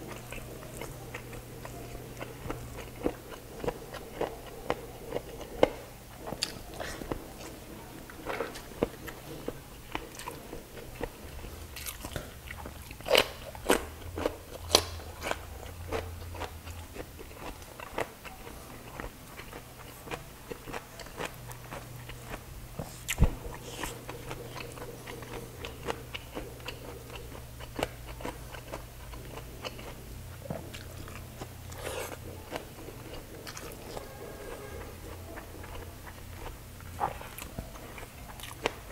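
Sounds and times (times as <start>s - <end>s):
chewing and wet mouth smacks: 0.0s - 18.1s.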